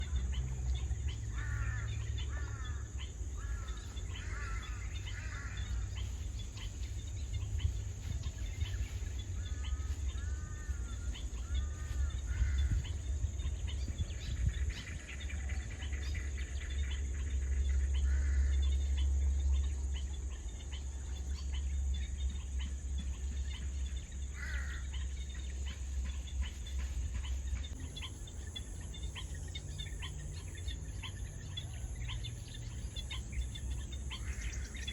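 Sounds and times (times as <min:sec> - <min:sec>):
birds calling: 0:00.0 - 0:34.9
high-pitched insect drone: 0:27.7 - 0:34.9.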